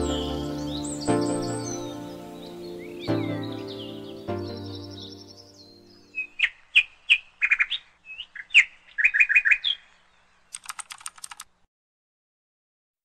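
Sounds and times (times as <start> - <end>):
bird chirping: 0.0 - 11.4
quick run of clicks: 10.5 - 11.6.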